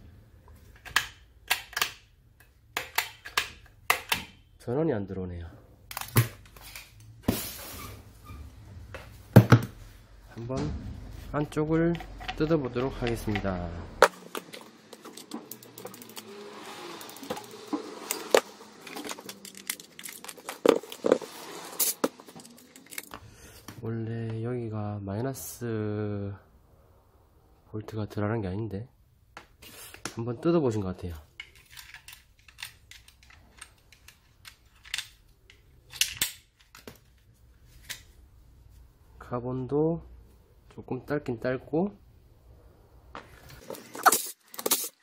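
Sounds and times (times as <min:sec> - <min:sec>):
hand tools clicking on plastic and metal: 0:00.8 - 0:04.3, 0:18.1 - 0:21.0, 0:31.3 - 0:36.9.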